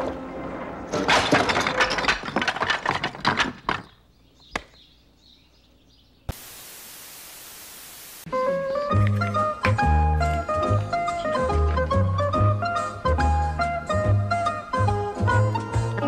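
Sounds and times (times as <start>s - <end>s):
steady even hiss: 6.3s - 8.3s.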